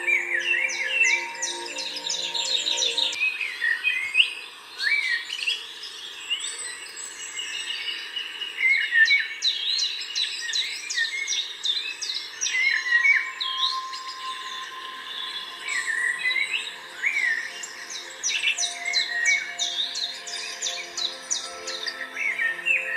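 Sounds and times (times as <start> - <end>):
birds chirping and whistling: 0.0 - 3.2, 12.0 - 22.9.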